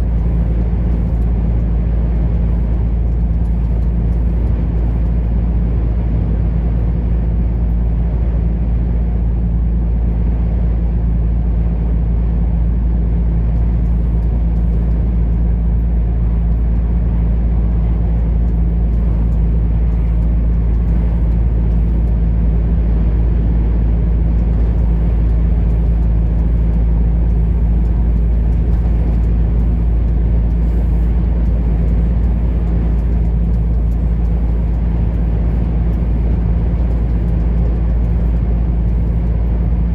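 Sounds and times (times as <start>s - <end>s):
truck engine drone: 0.0s - 39.9s.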